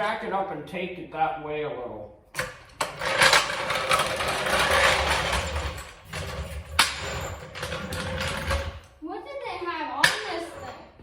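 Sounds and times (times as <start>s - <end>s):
floor jack rolling and scraping: 2.4s - 9.0s, 10.0s - 10.9s.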